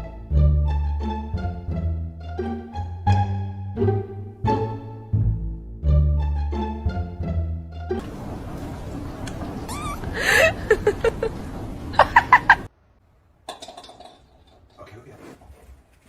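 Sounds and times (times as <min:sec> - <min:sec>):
steady background noise: 0:08.0 - 0:14.8
pet's high-pitched cries: 0:09.6 - 0:10.4.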